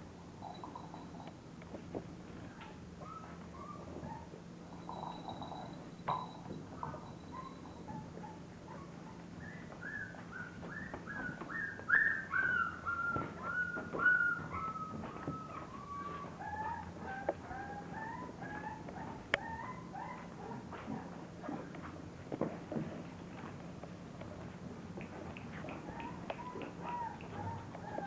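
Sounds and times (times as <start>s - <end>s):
puppies whimpering: 2.6s - 4.4s, 6.8s - 20.6s, 25.6s - 28.0s.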